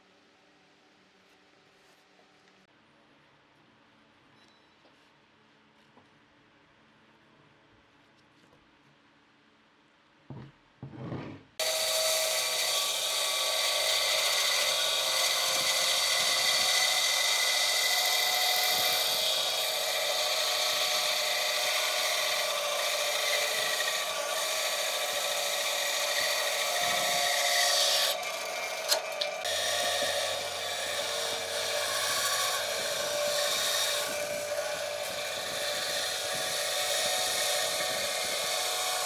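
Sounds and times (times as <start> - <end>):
power tool cutting wood: 11.6 - 39.0.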